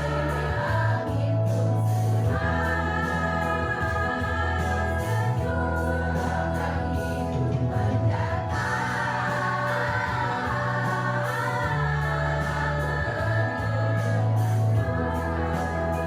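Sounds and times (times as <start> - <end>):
choir singing: 0.0 - 16.0.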